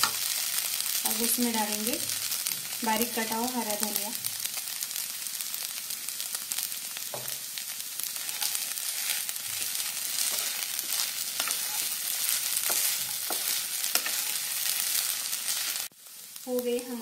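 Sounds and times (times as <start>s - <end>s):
food sizzling in a pan: 0.0s - 17.0s
wooden spatula scraping pan: 8.2s - 15.7s.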